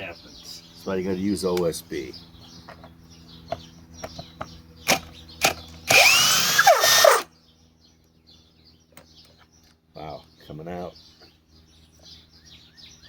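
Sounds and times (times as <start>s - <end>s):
cordless drill running: 4.9s - 7.3s.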